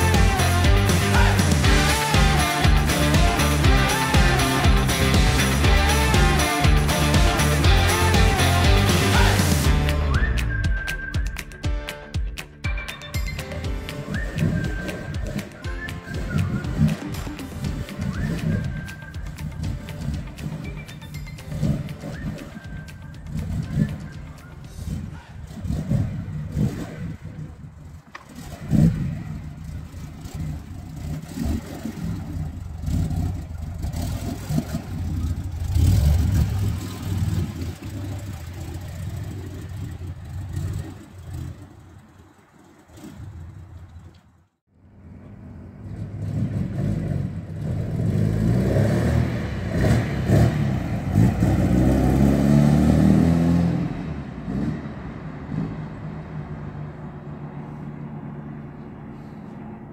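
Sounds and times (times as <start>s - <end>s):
car engine revving: 0.0s - 11.4s, 13.4s - 59.9s
car accelerating away: 13.4s - 59.9s.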